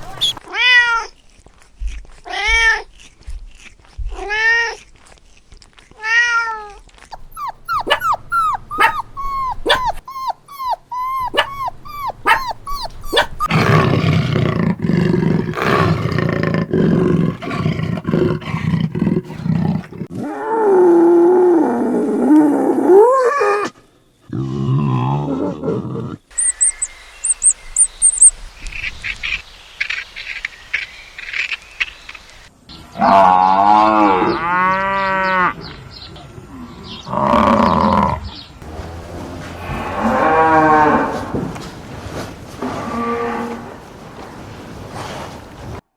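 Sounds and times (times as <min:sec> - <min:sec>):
wavering drawn-out animal call: 0:07.1 - 0:14.0, 0:26.3 - 0:28.3
rising and falling animal calls: 0:07.1 - 0:14.1, 0:26.3 - 0:28.3
animal growling: 0:07.1 - 0:23.0, 0:36.6 - 0:41.7.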